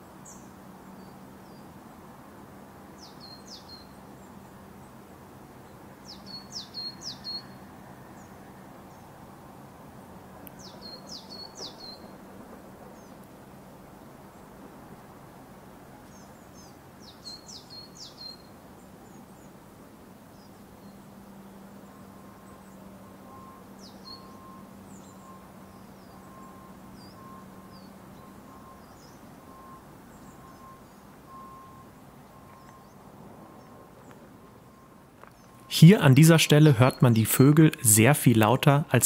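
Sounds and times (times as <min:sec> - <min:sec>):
faint steady low hum: 0:00.0 - 0:39.0
small birds chirping: 0:03.0 - 0:05.0, 0:06.0 - 0:07.6, 0:10.5 - 0:12.2, 0:16.0 - 0:19.6, 0:20.3 - 0:37.2.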